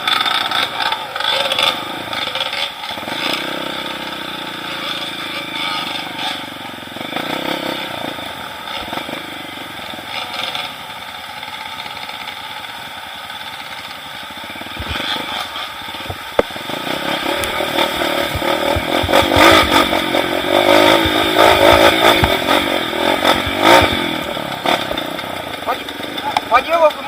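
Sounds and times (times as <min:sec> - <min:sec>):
motorcycle engine running: 0:00.0 - 0:27.0
clattering and scraping on rough ground: 0:14.8 - 0:27.0.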